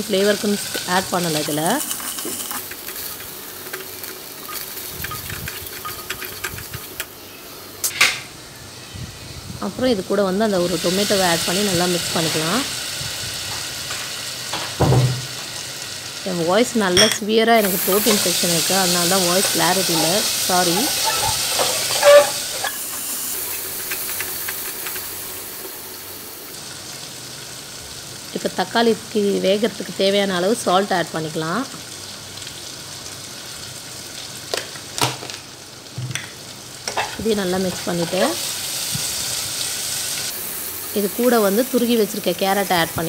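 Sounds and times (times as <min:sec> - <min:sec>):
food sizzling in hot oil: 0:00.0 - 0:43.0
spatula scraping pan: 0:00.5 - 0:07.0, 0:17.6 - 0:25.1
spatula scraping and tapping: 0:01.3 - 0:07.1.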